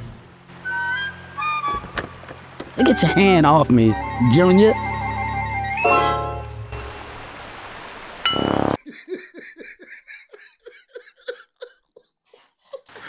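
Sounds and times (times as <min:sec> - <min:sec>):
loud high tone: 0:00.8 - 0:07.0
short evenly spaced laughs: 0:08.8 - 0:13.0.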